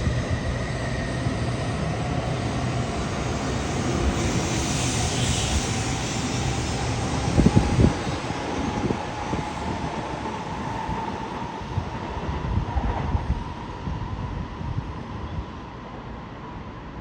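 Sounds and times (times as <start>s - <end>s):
train hiss: 0.0s - 11.8s
train wheels and motors whirring: 0.0s - 14.2s.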